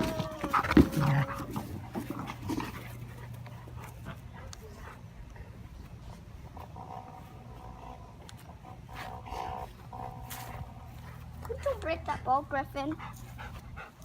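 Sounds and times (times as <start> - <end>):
dog panting: 0.4 - 5.6, 11.0 - 14.0.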